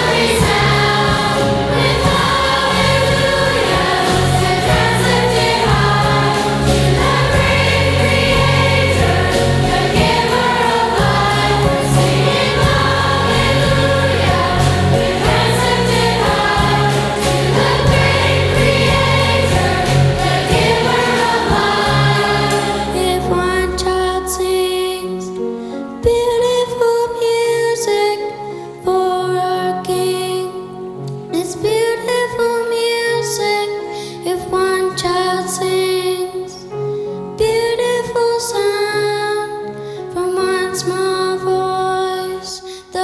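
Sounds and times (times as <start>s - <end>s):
choir singing a hymn: 0.0s - 24.8s
instrumental accompaniment: 0.0s - 25.8s.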